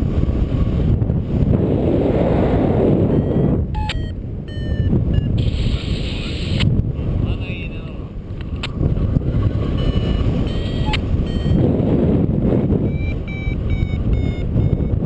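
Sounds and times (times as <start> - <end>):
wind noise on microphone: 0.0 - 15.0
variometer beeping: 2.9 - 5.8, 9.4 - 15.0.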